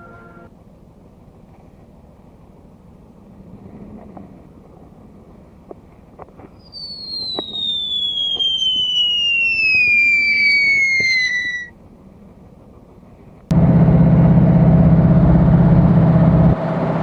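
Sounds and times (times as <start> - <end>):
whistling tone gliding down: 6.6 - 11.8.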